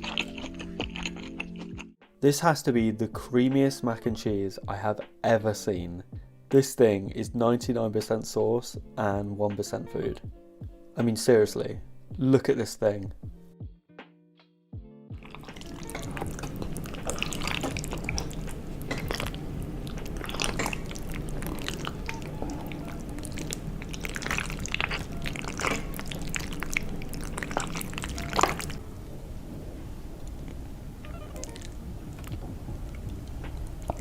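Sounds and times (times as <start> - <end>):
squishy eating and stirring: 0.0 - 2.0, 15.2 - 28.8, 30.1 - 34.0
sticky clicks and drips: 15.3 - 28.8.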